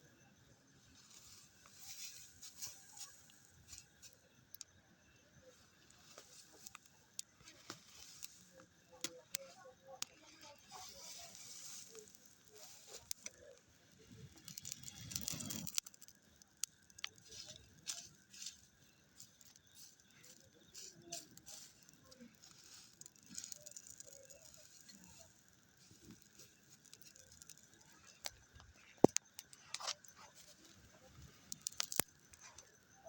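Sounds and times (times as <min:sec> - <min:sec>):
rustling: 0:05.9 - 0:32.7.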